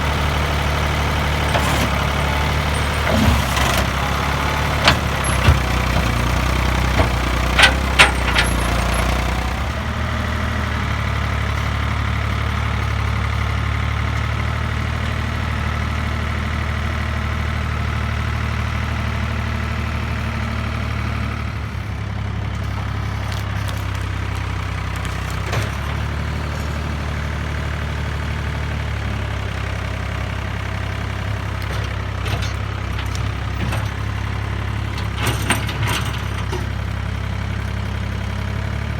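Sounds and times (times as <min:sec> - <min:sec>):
tractor engine running: 0:00.0 - 0:38.9
metal knocks and clanks: 0:01.4 - 0:09.3.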